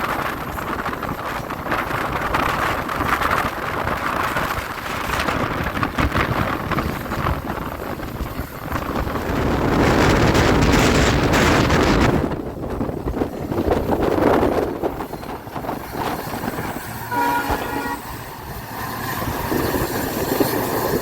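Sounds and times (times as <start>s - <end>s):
train wheels on rails: 0.0s - 21.0s
wind buffeting microphone: 0.0s - 21.0s.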